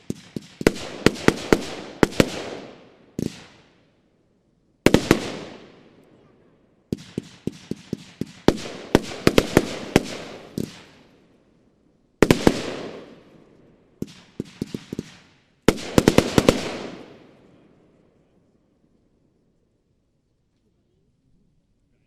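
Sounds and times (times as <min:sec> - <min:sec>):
firework battery firing: 0:00.0 - 0:03.8, 0:04.9 - 0:05.9, 0:06.9 - 0:11.1, 0:14.0 - 0:17.3.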